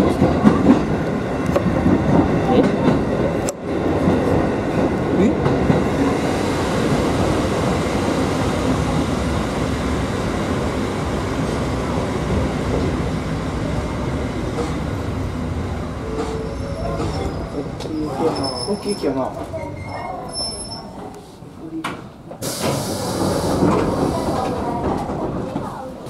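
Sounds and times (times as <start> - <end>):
train wheel rumble on rails: 0.0 - 19.9, 21.9 - 26.0
rail-joint clatter: 16.1 - 21.2.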